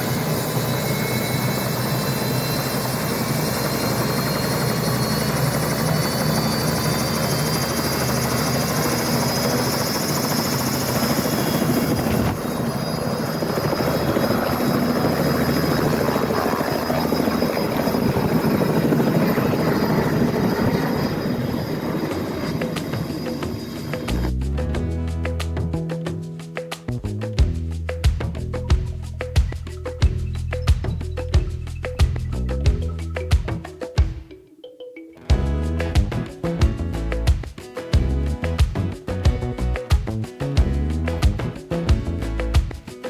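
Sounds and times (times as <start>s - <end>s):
helicopter rotor and turbine: 0.0s - 33.8s.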